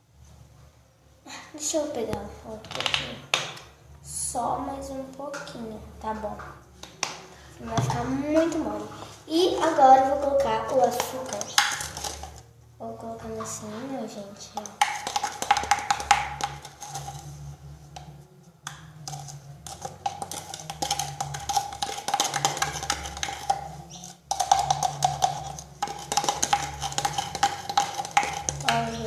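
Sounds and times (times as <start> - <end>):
utensil clinking in a container: 14.6 - 17.3, 19.1 - 29.0.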